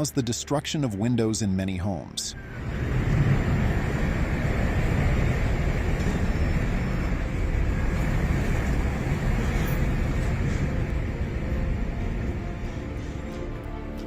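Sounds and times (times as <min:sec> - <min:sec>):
wind buffeting microphone: 0:02.4 - 0:13.3
strong wind roaring: 0:02.4 - 0:14.0.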